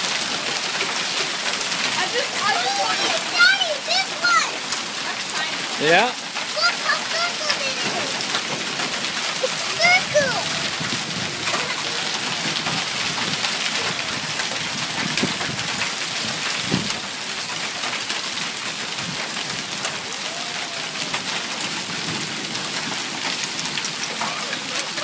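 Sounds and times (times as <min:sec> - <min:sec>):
sharp ticks of raindrops: 0:00.0 - 0:25.0
steady rain: 0:00.0 - 0:25.0.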